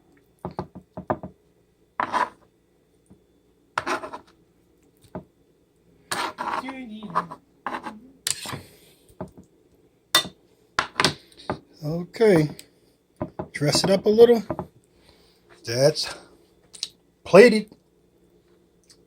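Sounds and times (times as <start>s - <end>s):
utensils knocking on a plate: 10.2s - 11.1s.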